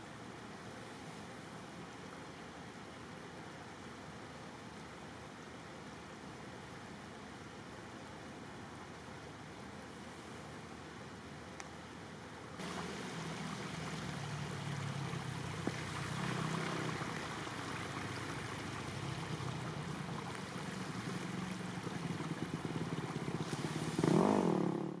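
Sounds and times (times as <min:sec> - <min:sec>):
engine humming: 0:12.6 - 0:25.0
steady rushing noise: 0:12.6 - 0:25.0.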